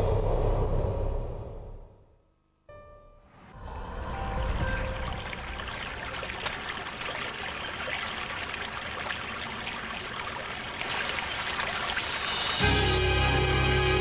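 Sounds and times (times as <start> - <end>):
rushing water: 3.9 - 14.0.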